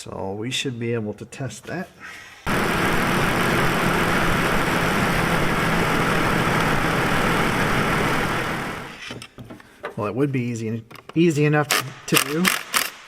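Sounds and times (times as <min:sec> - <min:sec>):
misfiring car engine running: 0:02.5 - 0:09.0.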